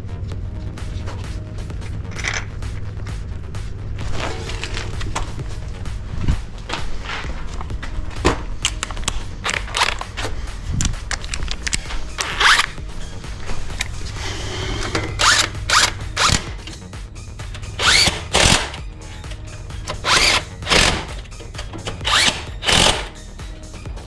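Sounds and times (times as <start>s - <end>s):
cordless drill bursts: 17.8s - 18.8s, 20.0s - 21.2s, 22.0s - 23.2s.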